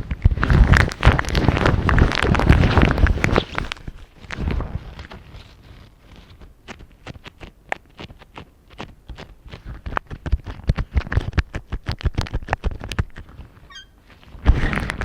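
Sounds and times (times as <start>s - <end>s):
fingertips tapping on microphone: 6.2s - 13.8s.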